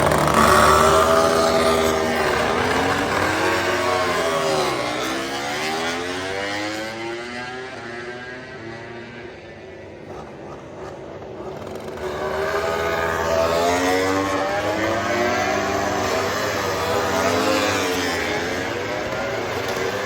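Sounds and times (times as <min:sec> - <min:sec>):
racing motorcycle engines revving: 0:00.0 - 0:20.0.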